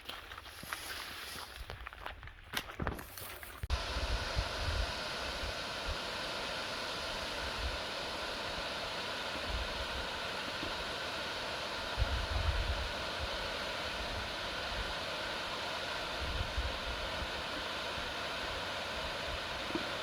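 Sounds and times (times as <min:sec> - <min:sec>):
footsteps on track: 0:00.0 - 0:03.7
flowing water rushing: 0:03.7 - 0:20.0
wind gusts on microphone: 0:12.0 - 0:13.4.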